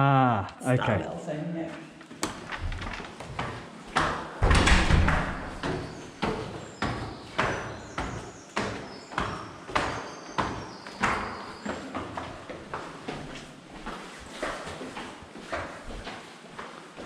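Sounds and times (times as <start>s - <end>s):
footsteps walking: 5.3s - 17.0s.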